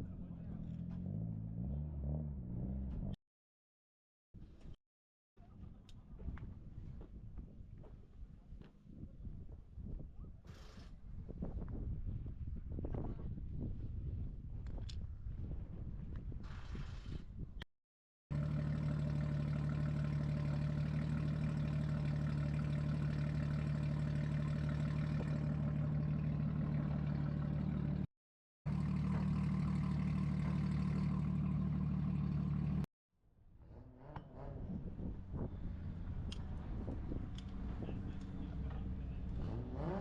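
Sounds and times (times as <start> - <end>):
engine running steadily: 18.3 - 28.1, 28.7 - 32.9, 34.0 - 40.0.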